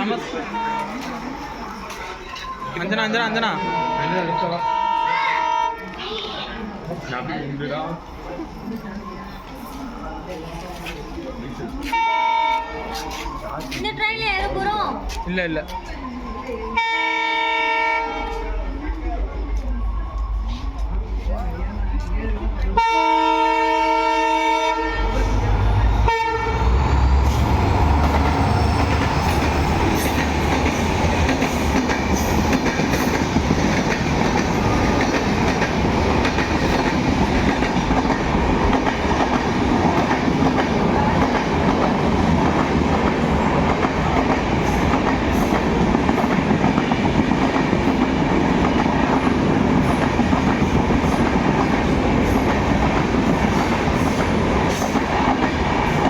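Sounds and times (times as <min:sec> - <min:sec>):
train rushing past: 0:00.0 - 0:56.0
diesel locomotive rumble: 0:18.2 - 0:55.7.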